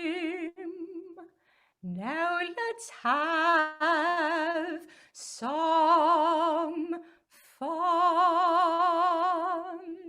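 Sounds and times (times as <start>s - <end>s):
woman singing unaccompanied: 0.0s - 10.0s
breath: 1.4s - 1.8s, 4.9s - 5.2s.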